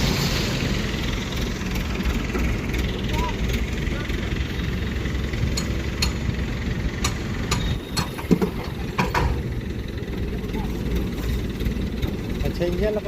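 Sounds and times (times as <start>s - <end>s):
tractor diesel engine rumbling: 0.0s - 13.0s
sharp clicks and knocks: 5.5s - 9.5s.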